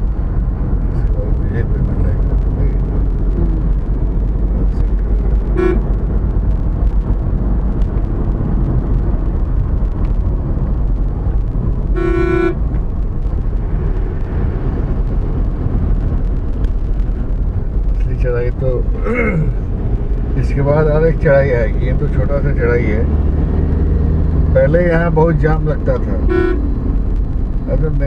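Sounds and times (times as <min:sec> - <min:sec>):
highway road rumble: 0:00.0 - 0:28.0
vehicle horn honking: 0:05.5 - 0:05.8, 0:12.0 - 0:12.6, 0:26.2 - 0:26.6.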